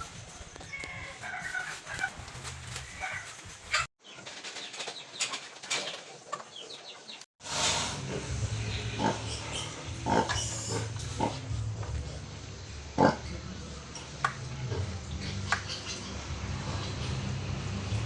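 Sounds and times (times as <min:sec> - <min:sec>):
pigs grunting and squealing: 0:07.6 - 0:17.6
steady low hum: 0:07.9 - 0:18.0.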